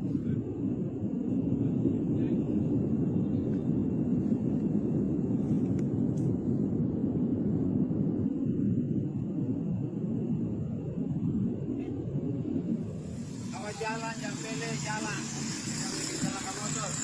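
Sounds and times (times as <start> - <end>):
volcano erupting roar: 6.6 - 17.0.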